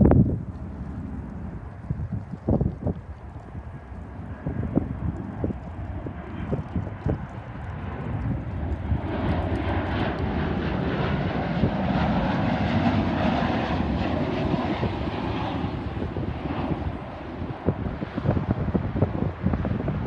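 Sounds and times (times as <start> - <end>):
jet airliner engine roar: 0.0 - 20.0
wind buffeting microphone: 0.0 - 20.0.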